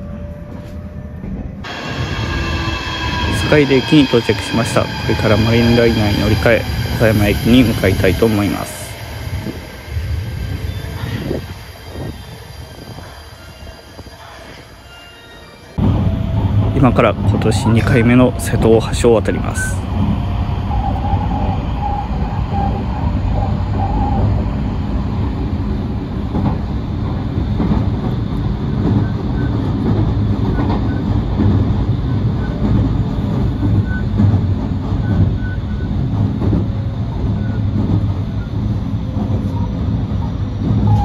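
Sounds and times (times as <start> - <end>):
train wheels rumbling on rails: 0.0 - 41.0
faint high whine: 1.7 - 14.8.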